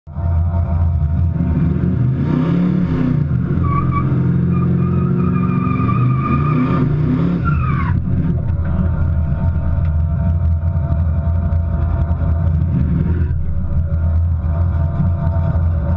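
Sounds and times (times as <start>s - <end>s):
car engine running loudly: 0.1s - 15.9s
high wavering squeal: 3.5s - 8.1s.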